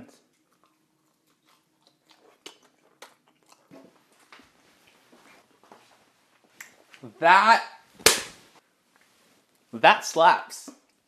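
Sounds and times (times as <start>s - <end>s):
faint chewing: 0.1s - 7.1s.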